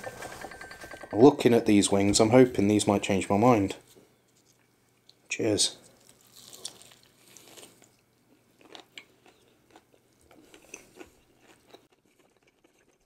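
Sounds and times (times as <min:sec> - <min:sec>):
crunching and chewing fried chicken: 0:05.8 - 0:13.0.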